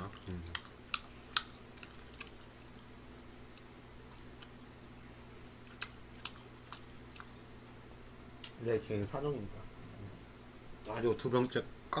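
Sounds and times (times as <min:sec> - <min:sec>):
person chewing food: 0:00.0 - 0:07.5
steady low hum: 0:00.0 - 0:12.0.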